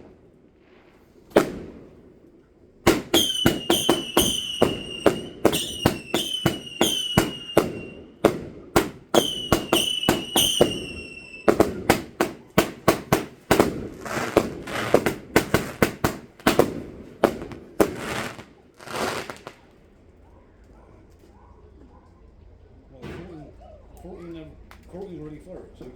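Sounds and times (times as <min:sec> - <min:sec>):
fireworks crackling: 0:00.0 - 0:20.0
fireworks bangs: 0:00.0 - 0:20.3
high whistle of fireworks: 0:02.9 - 0:19.8.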